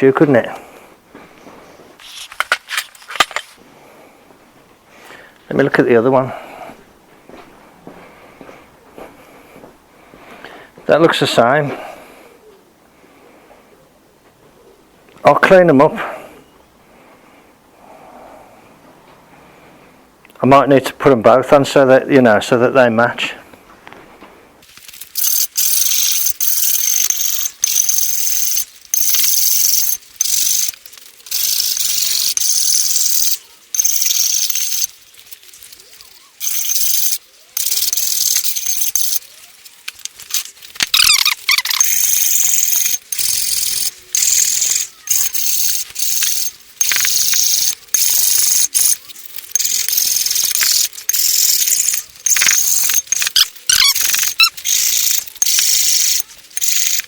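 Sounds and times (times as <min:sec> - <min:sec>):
scrubbing strokes on metal: 0:40.3 - 0:57.0.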